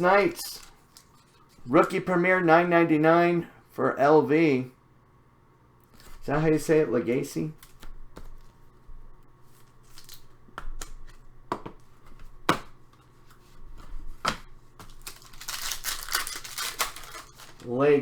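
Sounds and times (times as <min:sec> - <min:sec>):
wrapper crinkling and tearing: 0:09.8 - 0:10.3, 0:14.8 - 0:17.7
cards clicking and snapping: 0:13.8 - 0:17.7.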